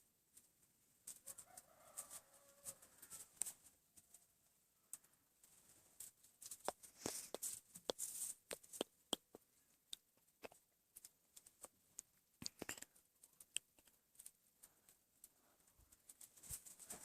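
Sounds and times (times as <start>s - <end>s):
faint small clicks and scratches: 0.3s - 4.3s, 4.9s - 17.0s
scraping rustle: 0.4s - 4.3s, 15.9s - 17.0s.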